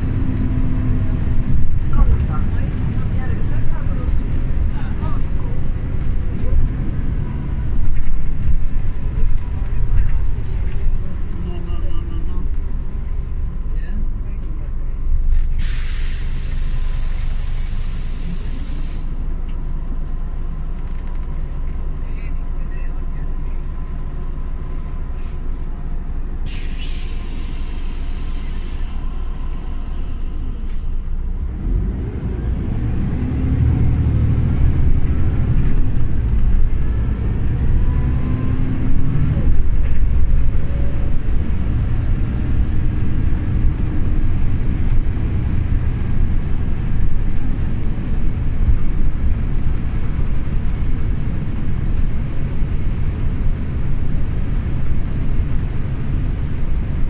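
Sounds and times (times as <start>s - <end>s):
bus engine accelerating: 0.0s - 57.0s
air brake hiss: 15.5s - 19.2s, 26.4s - 29.2s, 30.6s - 31.0s.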